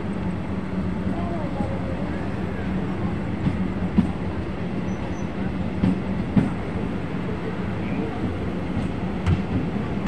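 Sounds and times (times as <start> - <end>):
train running rumble: 0.0 - 10.0.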